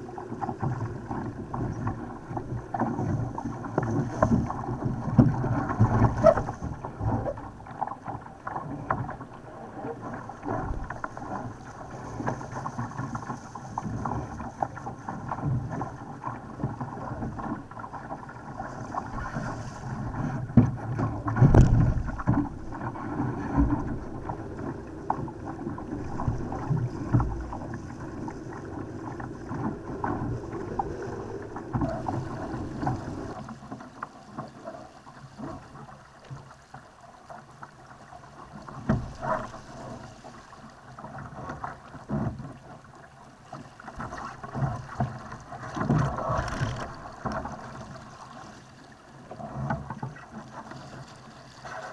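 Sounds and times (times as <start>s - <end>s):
water slapping against hull: 0.0s - 51.9s
wind buffeting microphone: 19.4s - 33.4s.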